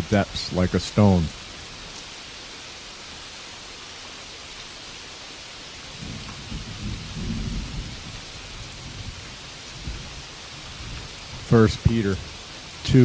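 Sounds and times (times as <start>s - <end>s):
rainfall hiss: 0.0s - 13.0s
thunder rumbling: 5.9s - 13.0s.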